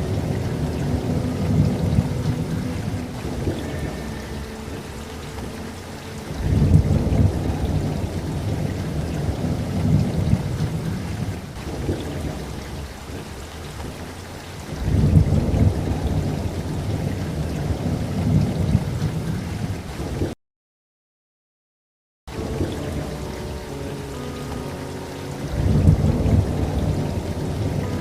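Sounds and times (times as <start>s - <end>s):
steady rain: 0.0s - 20.4s, 22.3s - 28.0s
rolling thunder: 6.2s - 20.3s, 25.5s - 28.0s.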